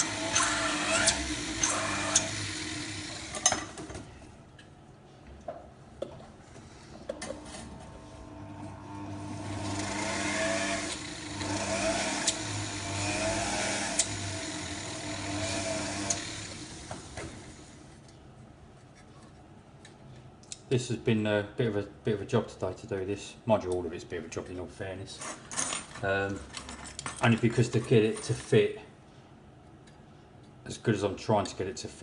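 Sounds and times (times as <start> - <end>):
power drill boring metal: 0.0 - 3.8, 8.3 - 17.6.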